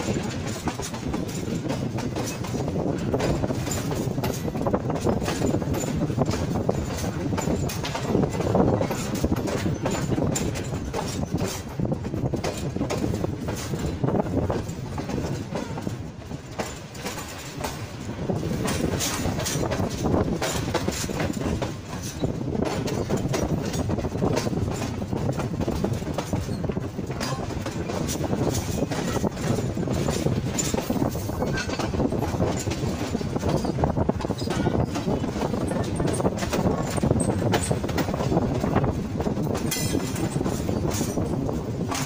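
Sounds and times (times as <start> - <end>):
train wheels rumbling on rails: 0.0 - 42.0
wheels clattering over rail joints: 0.0 - 42.0.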